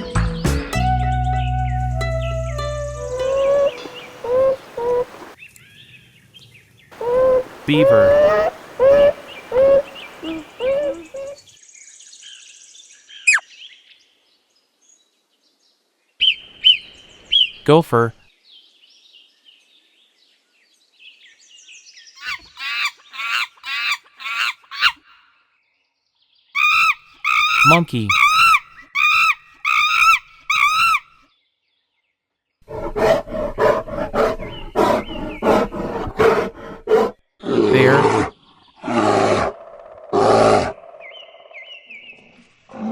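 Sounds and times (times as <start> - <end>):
beaver whining calls: 2.0 - 5.4, 7.0 - 11.4, 26.6 - 31.0
faint bird chirps: 7.0 - 11.9, 26.6 - 31.1.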